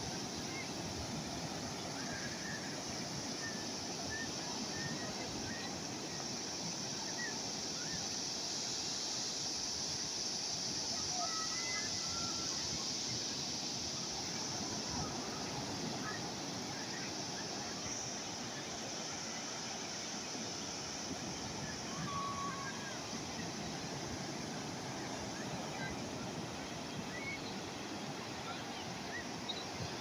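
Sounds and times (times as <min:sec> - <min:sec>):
calm sea waves washing: 0:00.0 - 0:30.0.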